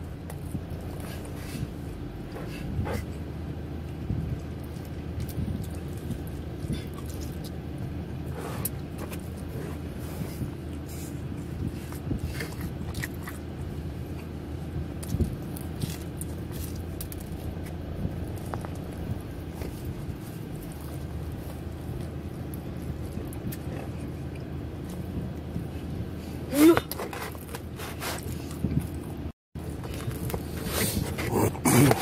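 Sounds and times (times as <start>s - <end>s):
chewing and wet mouth clicks: 3.8s - 7.9s, 10.7s - 25.6s.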